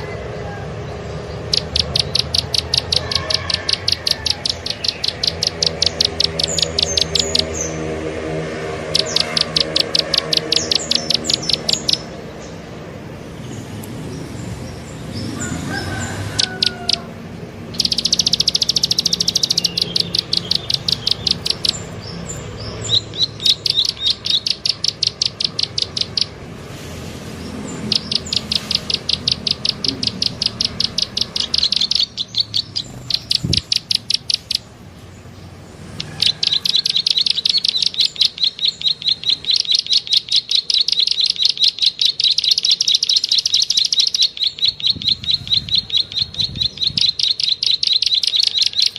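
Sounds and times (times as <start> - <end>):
bird clicking call: 1.5 - 7.6, 8.9 - 12.1, 15.7 - 17.1, 17.7 - 21.9, 22.7 - 26.4, 27.8 - 34.7, 36.0 - 48.9.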